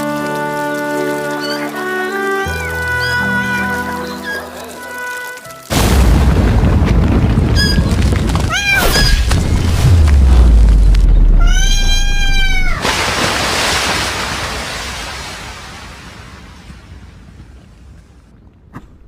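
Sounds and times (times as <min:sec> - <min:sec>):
cat meowing: 0:01.3 - 0:04.6, 0:08.5 - 0:09.3, 0:11.4 - 0:12.8
low rumble: 0:05.7 - 0:12.8
loud boom: 0:05.7 - 0:15.0.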